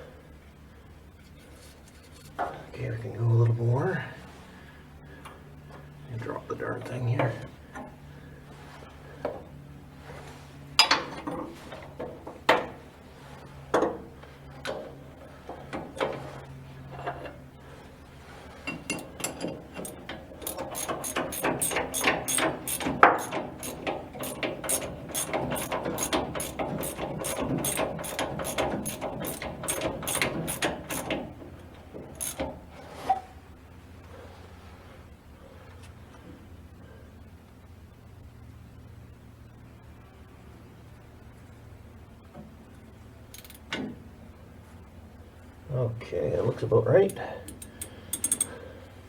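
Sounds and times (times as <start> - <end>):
ratchet wrench clicking: 19.8 - 31.2, 32.1 - 32.5, 43.3 - 43.6, 47.5 - 48.6.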